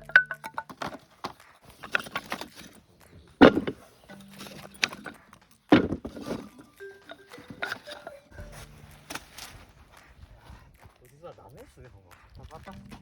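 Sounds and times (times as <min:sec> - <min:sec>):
loud thumps: 0:03.4 - 0:08.0.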